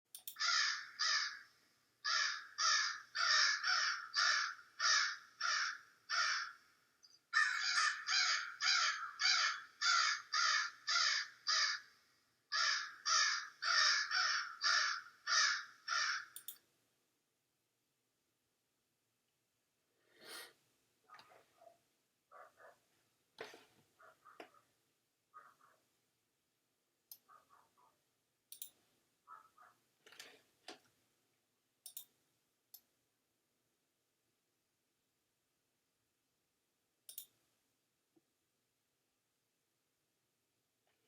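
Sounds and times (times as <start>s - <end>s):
crow cawing: 0.4s - 6.7s, 7.3s - 16.4s, 25.4s - 25.8s.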